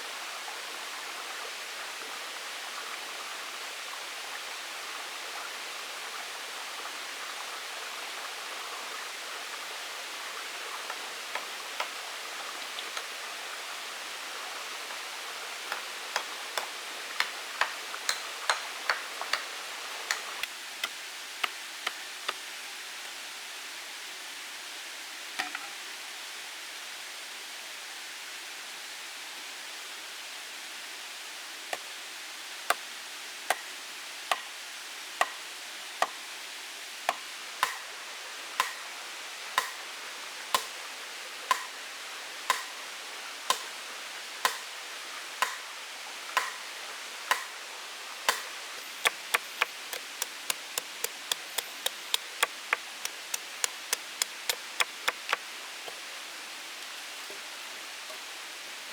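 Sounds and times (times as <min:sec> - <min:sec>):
steady hiss: 0:00.0 - 0:58.9
chopping strikes: 0:46.4 - 0:46.6, 0:47.3 - 0:47.5, 0:48.3 - 0:55.4.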